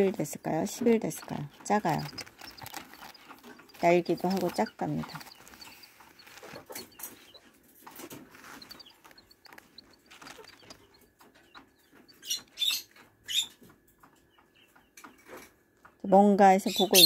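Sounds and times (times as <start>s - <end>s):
chick peeping: 0.0s - 15.4s, 16.0s - 17.0s
scratchy rustles: 0.7s - 12.5s.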